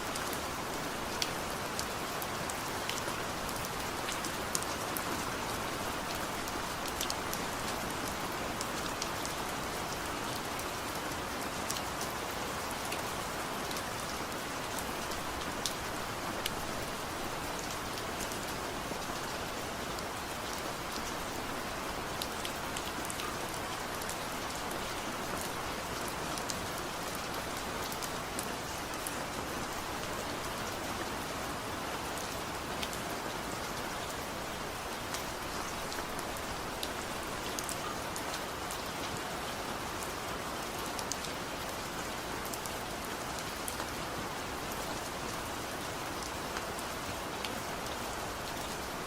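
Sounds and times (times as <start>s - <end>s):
rain falling: 0.0s - 49.0s.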